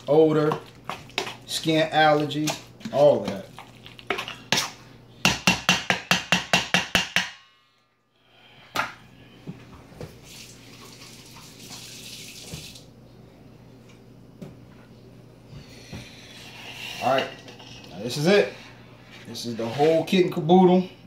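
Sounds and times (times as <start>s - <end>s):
utensil clanking on metal bowl: 0.0s - 7.4s
running water: 10.2s - 12.9s.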